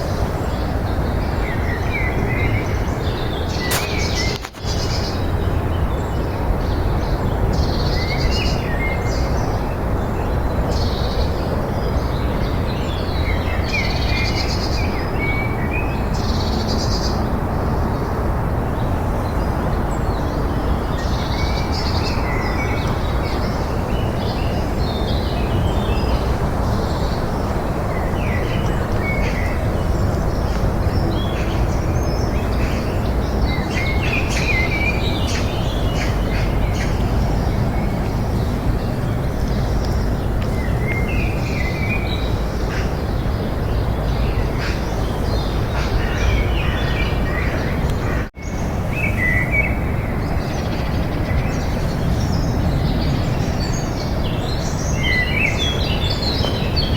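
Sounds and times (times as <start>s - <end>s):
small birds chirping: 0.0s - 9.6s.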